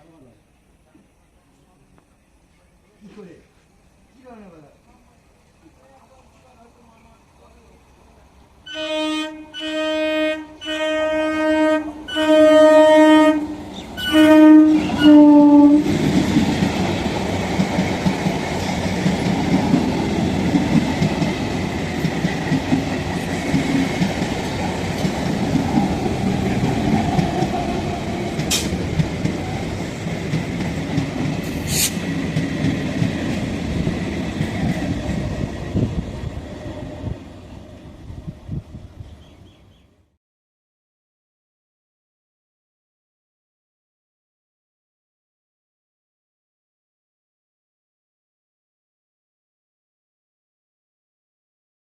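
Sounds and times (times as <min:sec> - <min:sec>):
train horn short blasts: 0:08.7 - 0:15.9
train passing with wheel clatter: 0:09.7 - 0:39.5.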